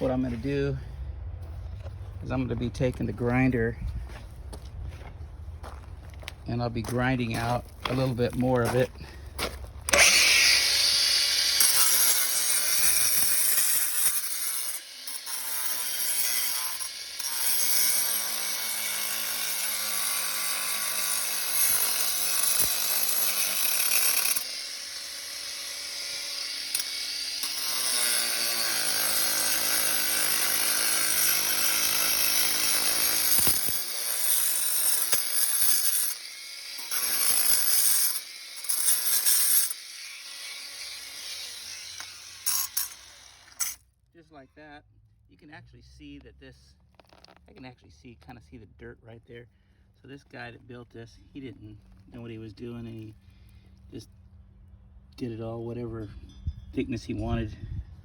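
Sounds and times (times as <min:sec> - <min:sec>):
angle grinder cutting concrete: 0:07.1 - 0:08.9, 0:09.9 - 0:43.8.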